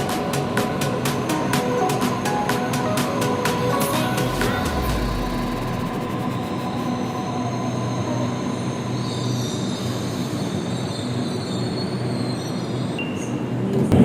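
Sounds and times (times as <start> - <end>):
train rumbling on track: 0.0 - 9.2
high-pitched squeal: 3.6 - 12.4.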